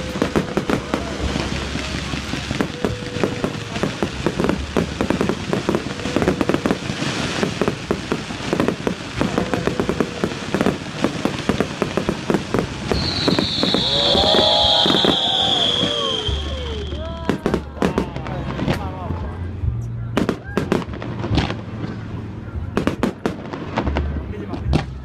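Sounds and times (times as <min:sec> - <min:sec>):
fireworks crackling and popping: 0:00.0 - 0:25.0
voices: 0:00.0 - 0:25.0
loud high whistle: 0:12.9 - 0:17.2.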